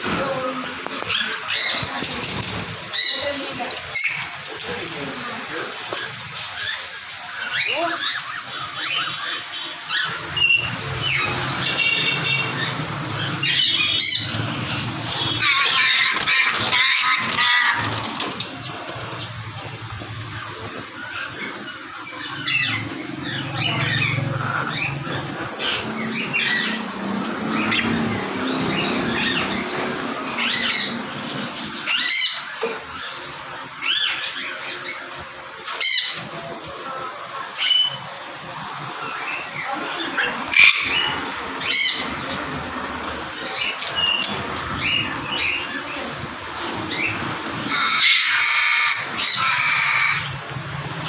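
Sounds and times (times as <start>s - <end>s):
parrot squawking: 1.1s - 18.3s, 40.1s - 50.4s.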